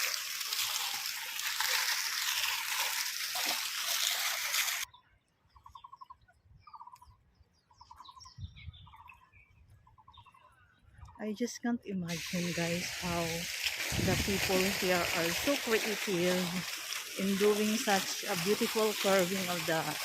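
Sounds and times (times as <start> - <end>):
fountain water splashing: 0.0 - 4.9, 12.1 - 20.0
birds calling trilled notes: 4.8 - 13.4
high bird chirps: 4.9 - 11.2.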